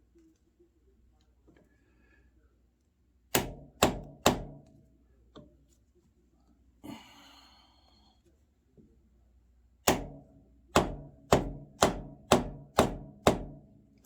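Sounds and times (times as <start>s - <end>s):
hammer striking steel bar: 3.3s - 4.7s, 9.9s - 13.7s.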